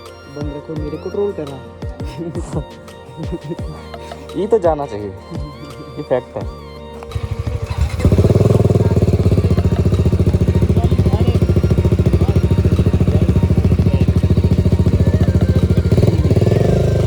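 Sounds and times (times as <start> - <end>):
motorcycle engine idling: 6.4 - 17.0.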